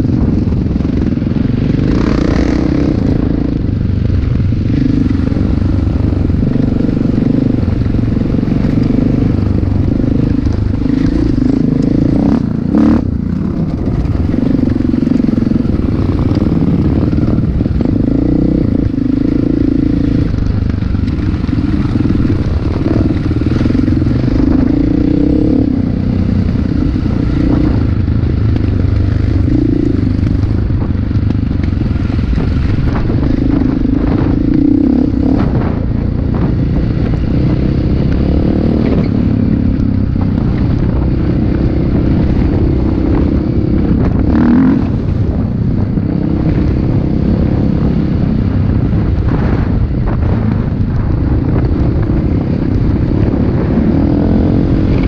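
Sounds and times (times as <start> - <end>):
low rumble: 0.0 - 55.0
motorcycle engines revving: 0.0 - 55.0.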